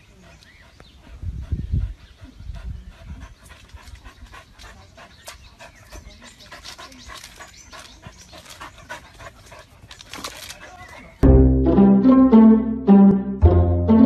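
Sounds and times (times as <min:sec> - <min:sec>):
dog panting hard: 0:00.0 - 0:11.2.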